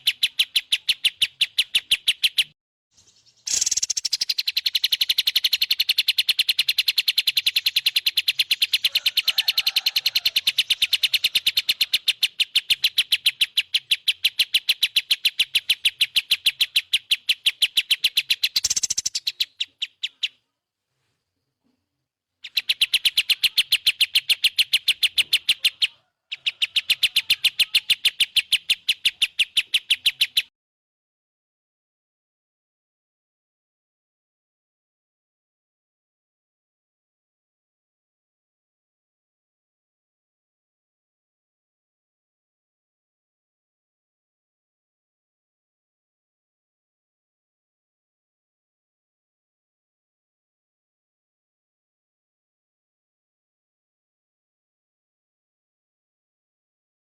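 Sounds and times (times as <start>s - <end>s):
fast high bird chirps: 0.0s - 20.6s, 22.4s - 30.5s.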